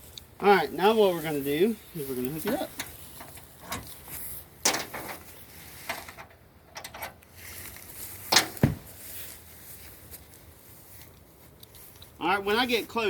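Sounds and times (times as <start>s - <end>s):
knocks and clunks: 4.6s - 5.3s, 8.3s - 8.9s.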